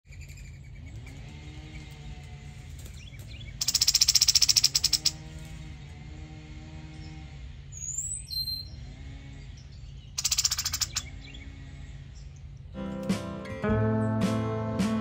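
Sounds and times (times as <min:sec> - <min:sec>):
small bird trilling: 0:03.0 - 0:05.3, 0:10.0 - 0:11.4.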